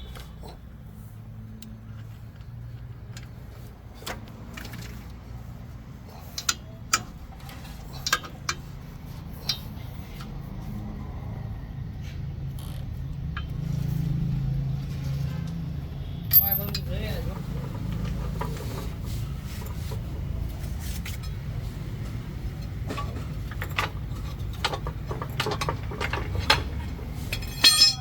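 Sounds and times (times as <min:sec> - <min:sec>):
metallic clinks of hand tools: 0:16.3 - 0:16.9, 0:27.4 - 0:28.0.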